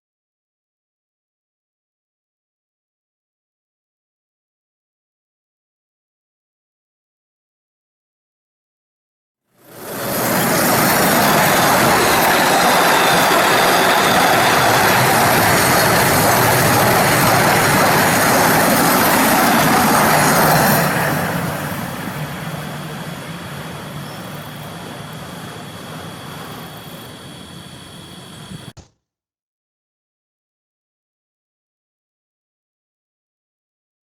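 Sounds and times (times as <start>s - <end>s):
train wheels on rails: 9.6s - 28.8s.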